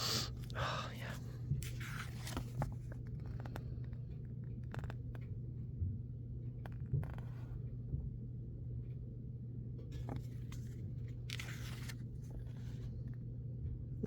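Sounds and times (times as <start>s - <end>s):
steady low hum: 0.0s - 14.0s
paper and plastic clicks and scrapes: 10.0s - 12.9s.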